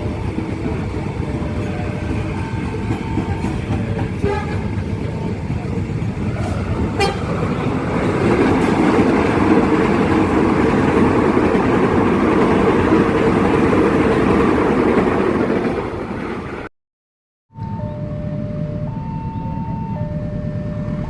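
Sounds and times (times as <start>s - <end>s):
train rumbling along rails: 0.0s - 16.7s.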